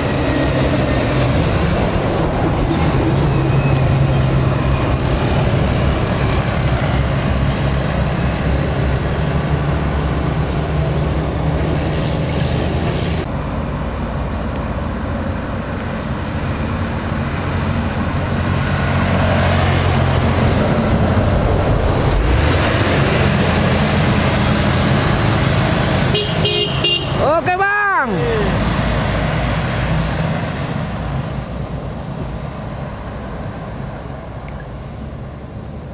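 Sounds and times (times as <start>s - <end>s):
diesel truck engine droning: 12.6s - 35.9s.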